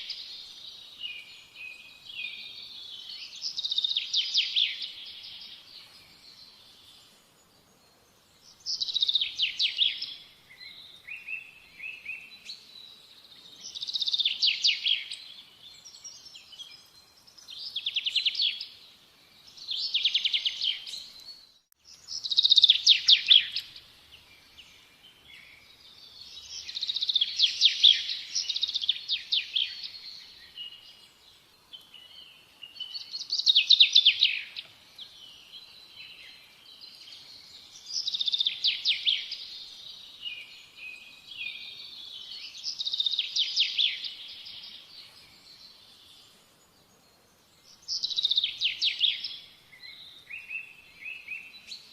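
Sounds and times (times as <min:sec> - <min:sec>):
soft bird chirps: 0:00.0 - 0:51.9
songbird trilled phrases: 0:31.7 - 0:46.3.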